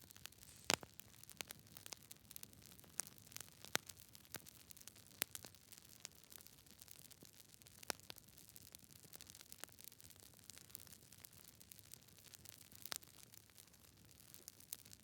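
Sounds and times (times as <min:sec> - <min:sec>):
faint steady hiss: 0:00.0 - 0:06.1
campfire crackling and popping: 0:00.0 - 0:15.0.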